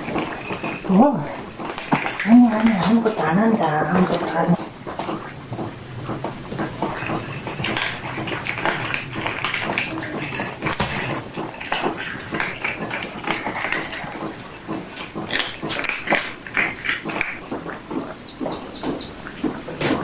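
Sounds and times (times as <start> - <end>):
cat vocalizing: 0.3 - 5.4.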